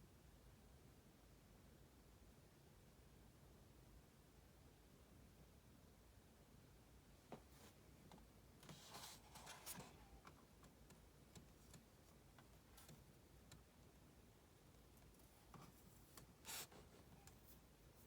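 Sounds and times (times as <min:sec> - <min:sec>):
soft rustle: 0:07.3 - 0:14.0.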